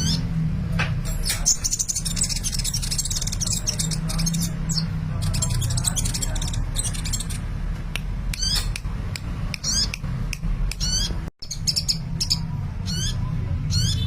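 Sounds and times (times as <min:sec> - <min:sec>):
sunbird chirping: 0:01.2 - 0:07.4.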